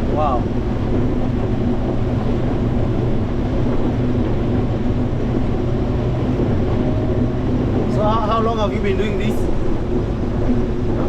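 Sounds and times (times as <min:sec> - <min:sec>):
combine harvester engine hum: 0:00.0 - 0:11.0.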